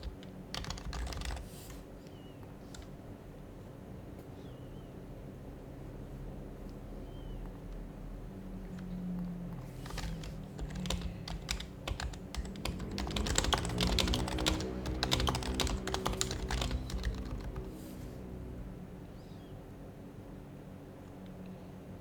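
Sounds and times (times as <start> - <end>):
soft keyboard typing: 0.0 - 3.0, 8.6 - 17.8
low steady hum: 0.0 - 22.0.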